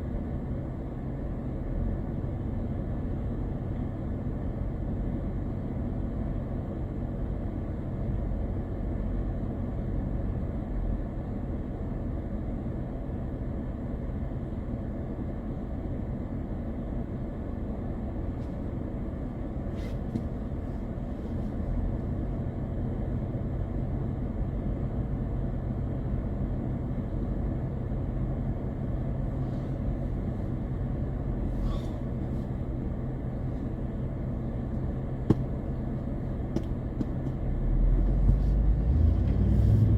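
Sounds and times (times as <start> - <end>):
car driving drone: 28.7 - 39.9.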